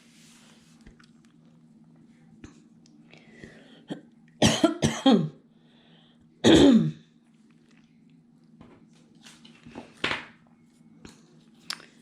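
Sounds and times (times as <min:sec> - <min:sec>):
woman coughing: 0:03.9 - 0:05.4, 0:06.4 - 0:07.0.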